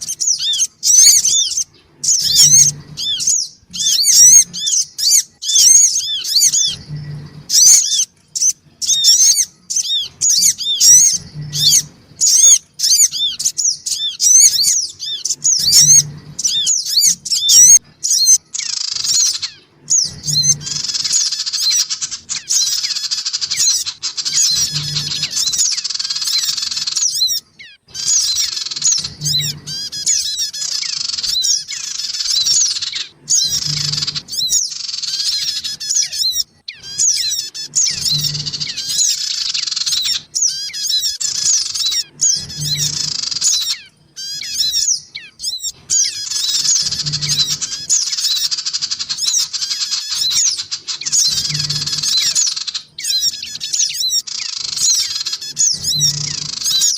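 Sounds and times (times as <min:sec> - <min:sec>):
birds chirping and chattering: 0:00.0 - 0:56.9.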